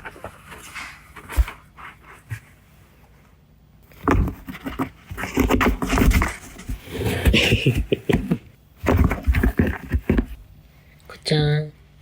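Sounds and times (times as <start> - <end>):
cat tearing cardboard box: 0.0 - 2.4, 3.9 - 10.4.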